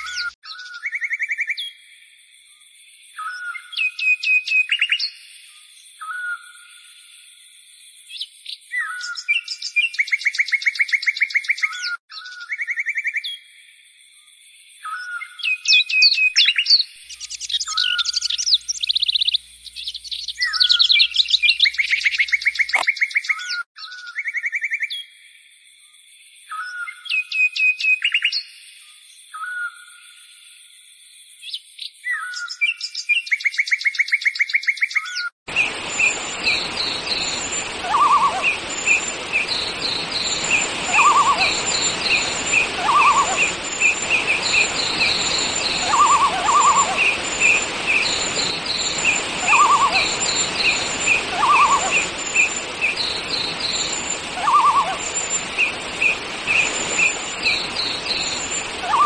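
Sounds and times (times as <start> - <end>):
songbirds calling: 0.0 - 1.7, 14.8 - 24.4, 31.8 - 59.0
whistled chirps and trills: 0.0 - 1.7, 14.8 - 25.0, 32.1 - 59.0
background hiss: 35.5 - 59.0.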